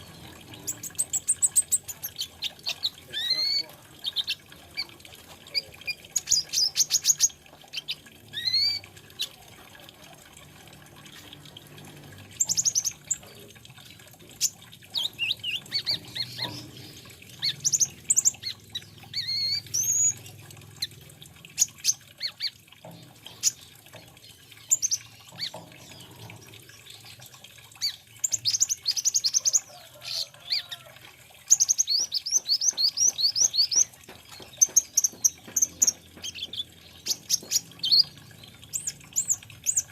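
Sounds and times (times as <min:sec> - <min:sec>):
sunbird chirping and trilling: 0:00.0 - 0:04.9, 0:05.5 - 0:09.3, 0:12.3 - 0:20.9, 0:27.8 - 0:30.8, 0:31.4 - 0:39.9.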